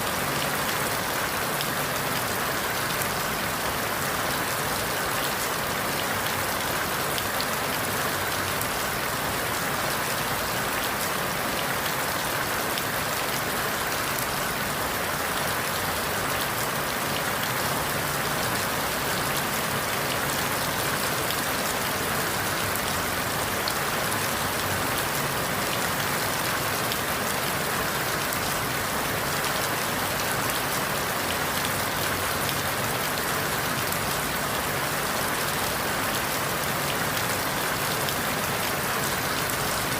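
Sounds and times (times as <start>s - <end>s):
rain falling through leaves: 0.0s - 39.9s.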